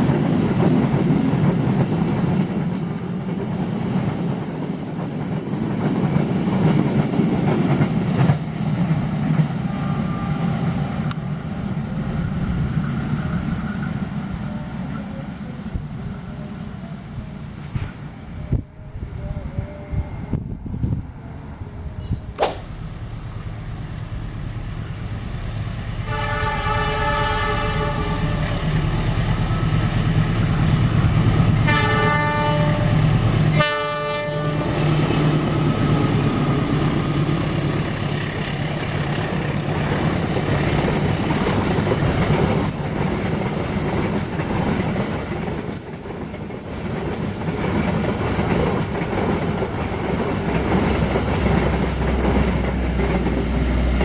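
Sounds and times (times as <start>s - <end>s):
carriages rumbling past: 0.0s - 22.1s, 22.7s - 54.0s
sharp knock: 22.4s - 22.7s
train horn blasts: 26.0s - 28.8s, 31.6s - 35.1s
wheels clacking over rail joints: 28.4s - 54.0s.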